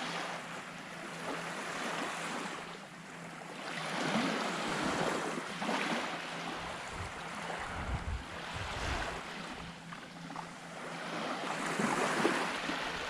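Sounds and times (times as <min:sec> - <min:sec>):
small waves on sandy beach: 0:00.0 - 0:13.0
wind buffeting microphone: 0:06.6 - 0:09.3.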